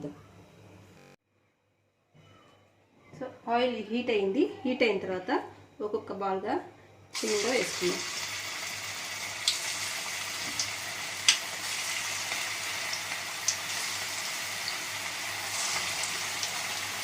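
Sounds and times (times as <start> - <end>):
food deep-frying in hot oil: 7.2 - 17.0.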